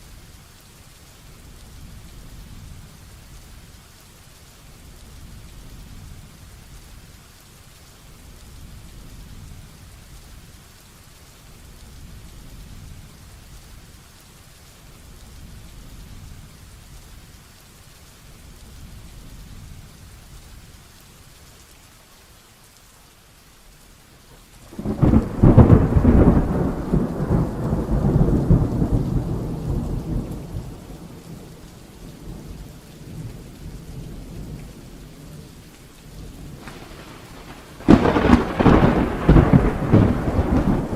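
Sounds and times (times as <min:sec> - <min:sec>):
heavy rain: 0:00.0 - 0:40.9
thunderclap: 0:24.7 - 0:31.4, 0:36.4 - 0:40.9.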